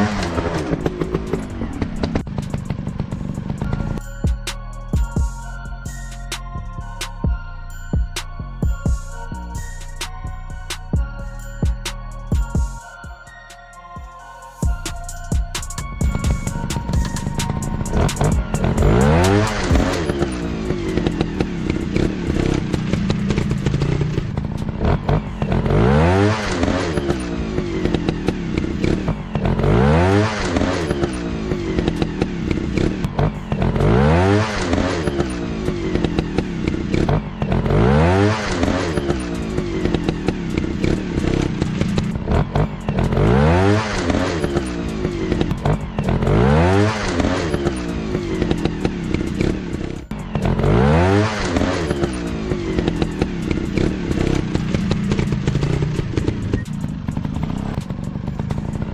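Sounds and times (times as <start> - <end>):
dirt bike engines revving: 0.0 - 4.0, 16.0 - 58.9.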